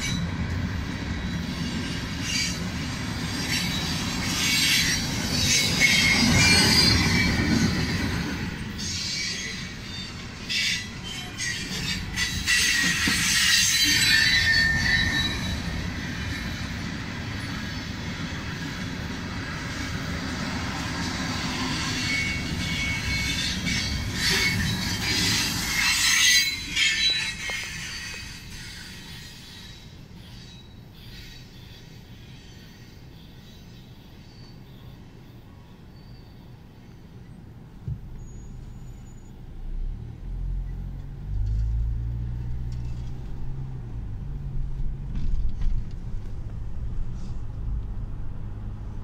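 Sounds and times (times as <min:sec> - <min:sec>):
steel wheels rumbling on rails: 0:00.0 - 0:34.6, 0:37.1 - 0:49.0
high-pitched wheel squeal: 0:08.8 - 0:16.8, 0:21.6 - 0:33.0, 0:38.2 - 0:39.4.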